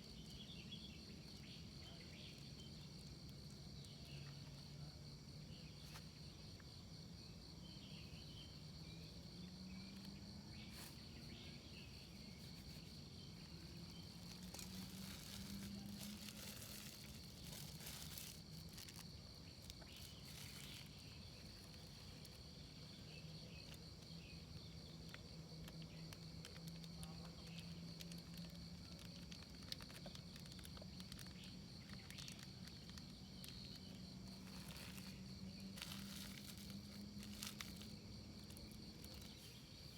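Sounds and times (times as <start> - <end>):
insects chirping: 0.0 - 39.9
rustles: 9.8 - 39.9.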